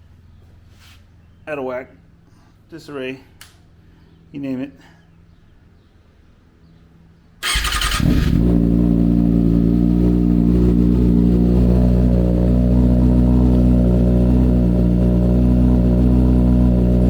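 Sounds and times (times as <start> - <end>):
motorcycle engine starting and idling: 7.4 - 17.0.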